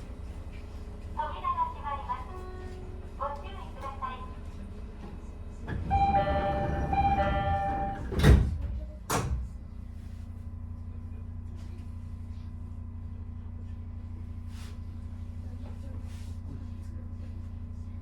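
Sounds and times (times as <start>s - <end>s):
train low hum: 0.0s - 18.0s
two-note door chime: 5.9s - 8.1s.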